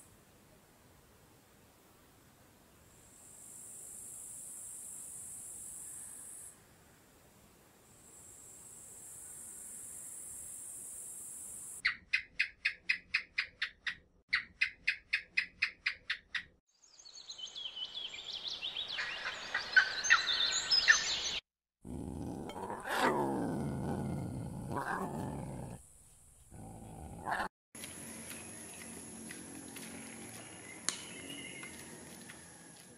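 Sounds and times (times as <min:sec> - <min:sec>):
deep roar-like animal call: 0:21.8 - 0:25.8, 0:26.5 - 0:27.5.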